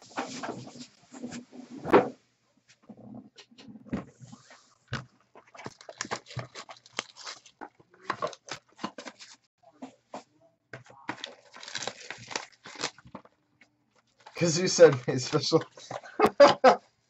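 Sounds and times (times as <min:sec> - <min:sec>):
card packaging crinkling and tearing: 0:05.4 - 0:09.4, 0:11.0 - 0:13.3.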